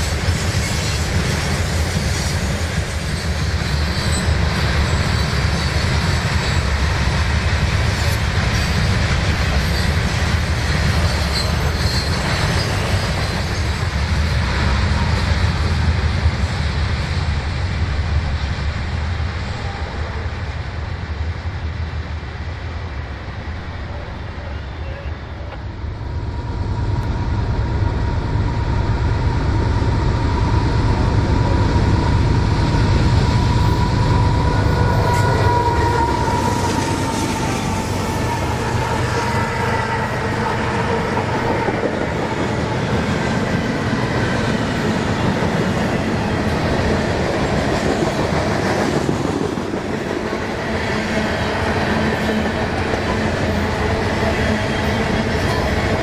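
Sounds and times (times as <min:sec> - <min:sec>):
locomotive engines rumbling: 0:00.0 - 0:56.0
train wheels clattering over rails: 0:33.4 - 0:56.0.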